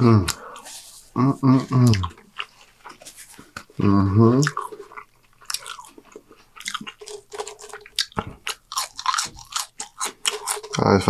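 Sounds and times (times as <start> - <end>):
person chewing food: 1.5 - 11.0
mouth clicks and smacks: 1.7 - 11.0.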